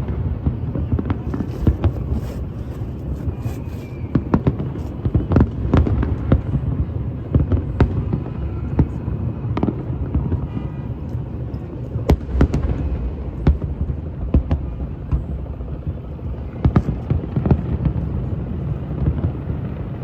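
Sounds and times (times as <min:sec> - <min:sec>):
fireworks bangs and pops: 0:00.1 - 0:06.6.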